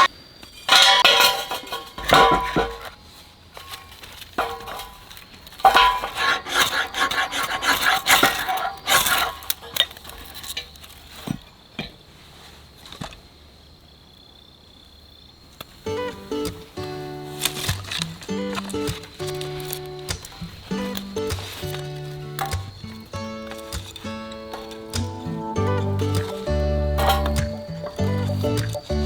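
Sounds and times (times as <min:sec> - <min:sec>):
dishes and utensils clinking: 0:00.6 - 0:03.0, 0:16.0 - 0:29.0.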